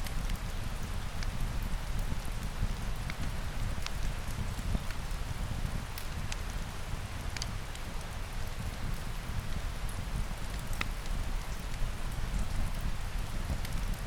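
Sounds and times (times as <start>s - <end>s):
steady rain falling: 0.0s - 14.0s
wood fire popping: 0.1s - 9.6s.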